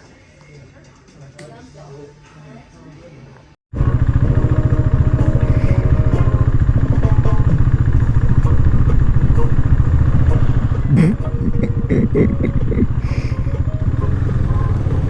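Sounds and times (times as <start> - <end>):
motorcycle engine running: 3.8 - 15.0.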